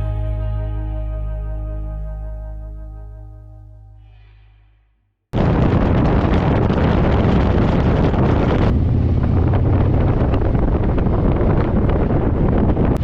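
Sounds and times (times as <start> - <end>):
motorcycle low rumble: 0.0 - 4.0, 5.4 - 13.0
wind buffeting microphone: 5.4 - 13.0.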